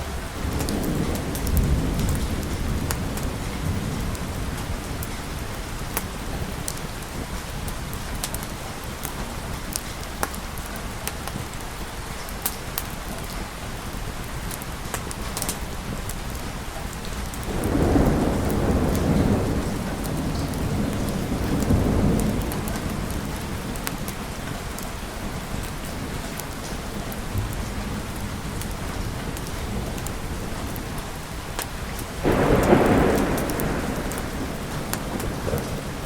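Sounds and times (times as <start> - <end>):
thunder rumbling: 0.0 - 7.7, 17.2 - 36.0
steady rain: 0.0 - 36.0.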